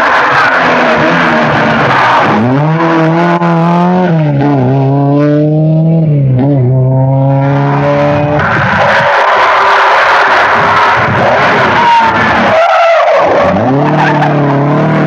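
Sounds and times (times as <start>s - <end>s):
rally car engine at full throttle: 0.0s - 15.0s.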